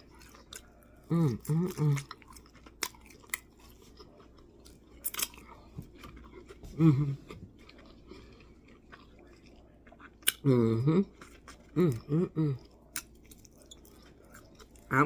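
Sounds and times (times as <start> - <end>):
person chewing wet food: 0.0 - 15.0
person humming: 1.1 - 2.0, 6.7 - 7.3, 10.4 - 11.1, 11.8 - 12.6
crunch: 1.6 - 6.6.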